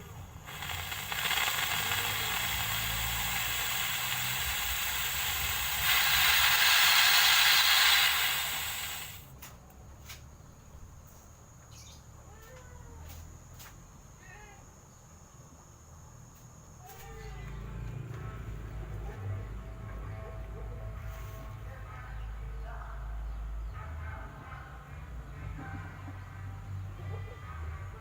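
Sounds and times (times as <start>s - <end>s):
steam hissing: 0.0s - 9.4s.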